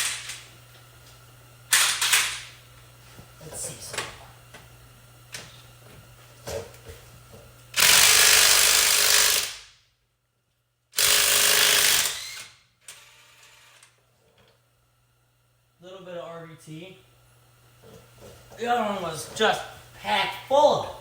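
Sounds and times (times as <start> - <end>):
impact wrench hammering: 11.0 - 12.2.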